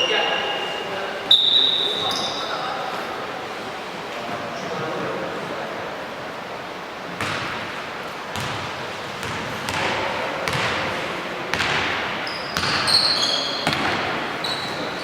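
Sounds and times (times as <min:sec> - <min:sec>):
sneakers squeaking: 0:00.0 - 0:03.2, 0:07.2 - 0:07.7, 0:08.3 - 0:10.9, 0:11.5 - 0:15.0
basketball bouncing in a gym: 0:07.2 - 0:14.7.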